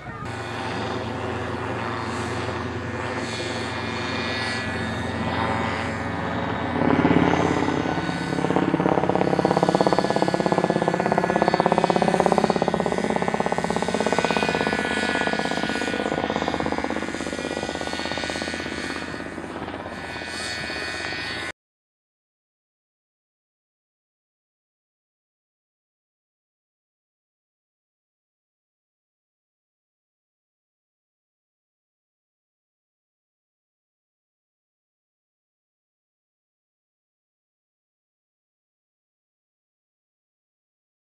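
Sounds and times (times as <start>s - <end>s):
helicopter flying: 0.0s - 21.6s.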